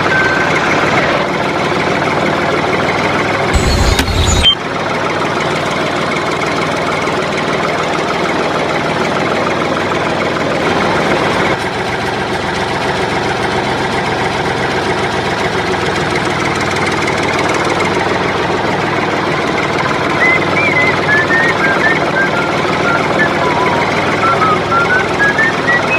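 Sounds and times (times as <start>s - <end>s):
toy tractor motor running: 3.6s - 4.6s, 19.5s - 25.9s.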